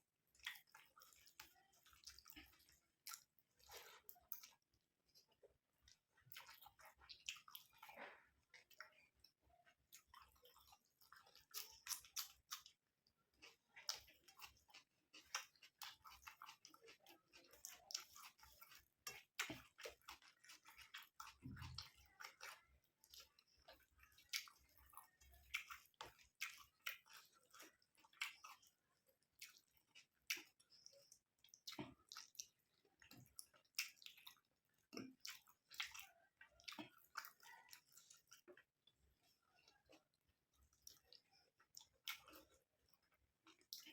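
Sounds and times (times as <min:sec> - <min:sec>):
wet chewing clicks and smacks: 0:00.2 - 0:43.9.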